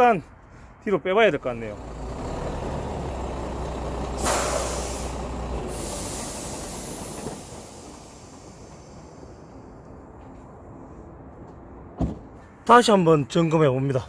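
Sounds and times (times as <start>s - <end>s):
truck engine running: 1.3s - 10.1s
air hissing: 2.8s - 10.0s
air brake hiss: 4.1s - 9.8s.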